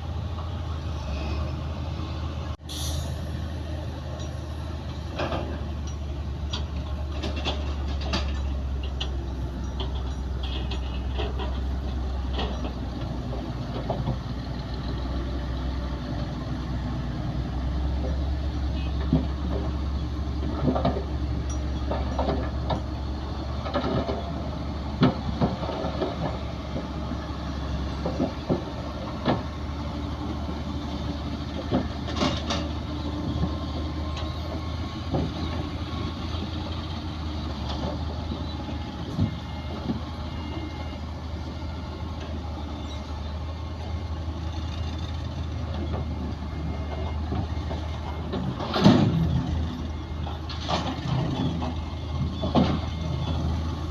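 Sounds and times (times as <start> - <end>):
heavy diesel machinery running: 0.0 - 53.9
knocks and clanks: 5.1 - 14.3, 20.4 - 23.0, 28.0 - 29.5, 46.8 - 49.6, 50.2 - 53.4.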